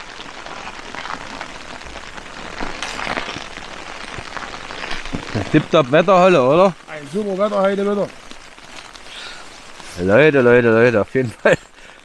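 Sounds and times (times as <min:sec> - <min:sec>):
rain on a tent roof: 0:00.0 - 0:12.0.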